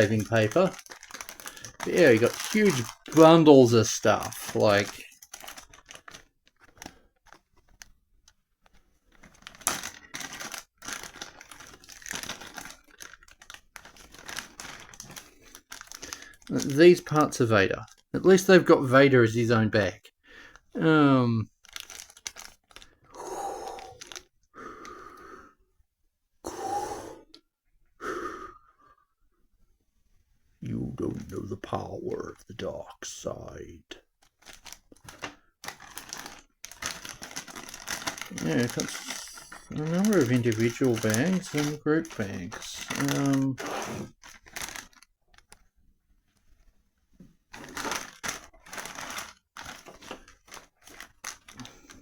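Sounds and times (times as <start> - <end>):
plastic bags rustling: 0.0 - 7.9, 8.8 - 19.9, 21.5 - 23.1, 23.7 - 24.2, 34.2 - 45.7, 47.4 - 52.0
person breathing loudly: 23.0 - 25.6, 26.4 - 27.4, 28.0 - 29.2.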